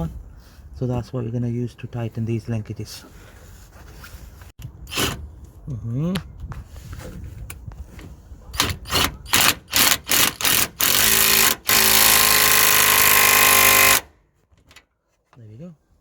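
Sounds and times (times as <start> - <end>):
impact wrench bursts: 8.6 - 14.1.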